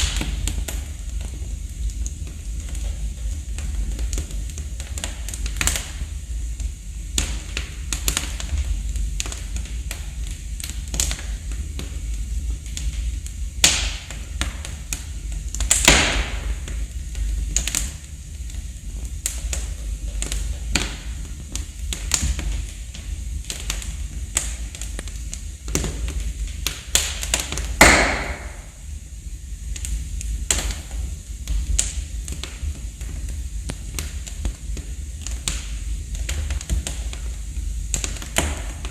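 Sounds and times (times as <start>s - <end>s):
wood fire crackling: 0.0s - 38.9s
steady low rumble: 27.6s - 30.5s.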